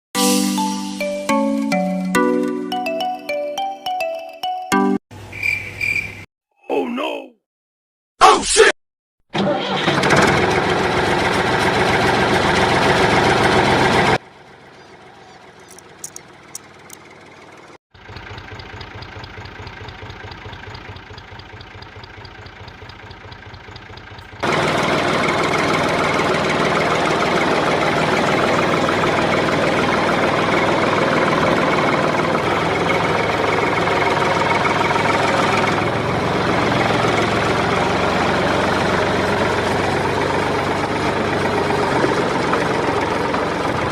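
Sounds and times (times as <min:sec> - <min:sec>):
clicks: 0:15.7 - 0:17.0.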